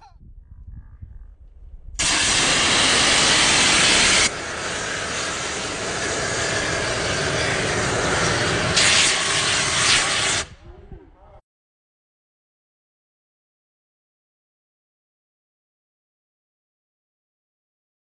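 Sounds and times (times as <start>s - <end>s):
loud steady hiss: 2.0s - 10.6s.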